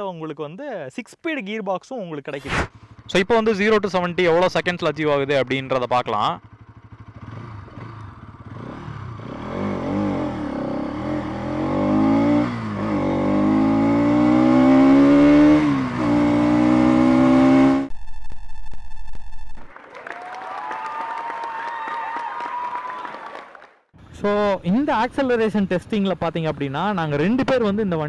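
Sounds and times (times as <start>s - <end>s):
motorcycle engine accelerating: 2.7s - 19.7s
electronic tone with ticks: 17.9s - 19.7s.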